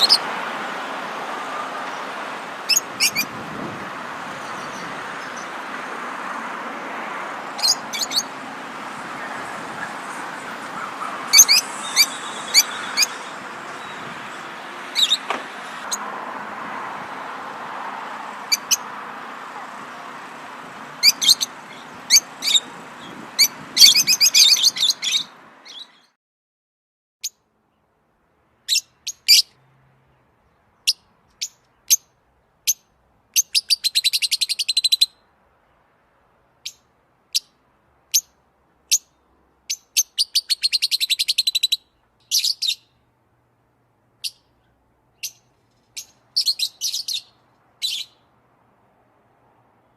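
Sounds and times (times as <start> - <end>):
songbirds chirping and trilling: 0.0 - 26.2, 27.2 - 49.9.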